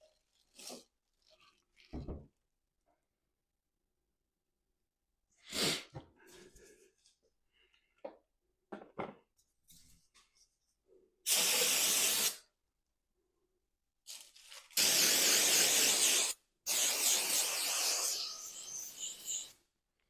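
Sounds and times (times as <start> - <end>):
aerosol can spraying: 11.3 - 12.4, 14.8 - 19.5.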